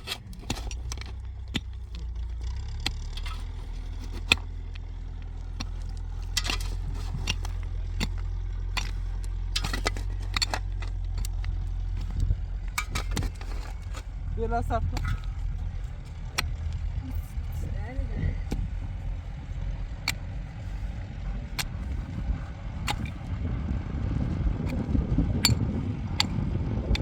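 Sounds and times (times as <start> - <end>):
sharp knocks and scrapes: 0.0 - 2.2, 2.8 - 14.2, 14.8 - 17.6, 18.3 - 23.2
tractor engine rumbling: 0.0 - 27.0.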